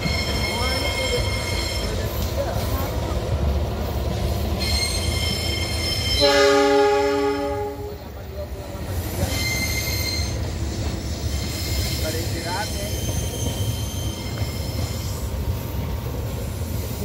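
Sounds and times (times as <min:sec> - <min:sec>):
train rumbling past: 0:00.0 - 0:17.0
wheel squeal: 0:04.5 - 0:06.3, 0:09.2 - 0:15.4
train horn: 0:06.1 - 0:08.0.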